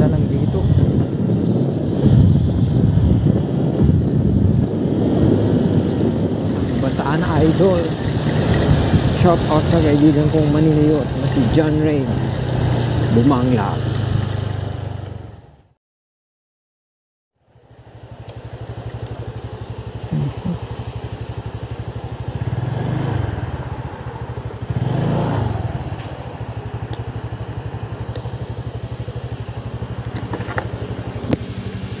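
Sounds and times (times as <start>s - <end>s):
motorcycle engine revving: 0.0s - 15.4s, 18.0s - 32.0s.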